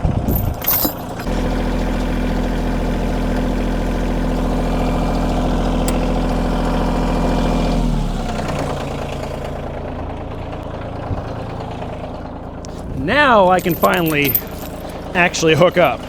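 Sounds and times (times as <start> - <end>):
tractor diesel engine idling: 0.1 - 16.0.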